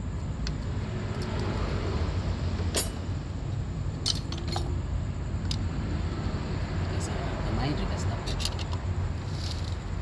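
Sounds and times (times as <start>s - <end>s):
metal tools clinking: 2.7s - 3.2s, 4.0s - 4.8s.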